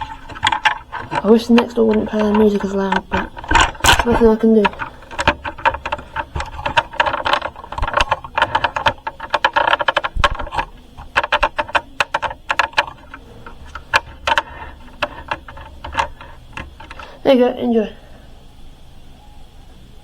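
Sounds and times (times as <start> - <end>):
rattling and clicking: 0.0 - 17.3.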